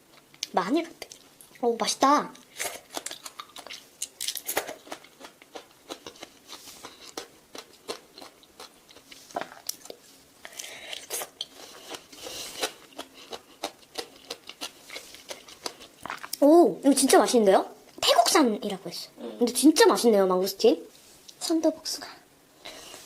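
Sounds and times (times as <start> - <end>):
biting and chewing fruit: 2.5 - 16.4.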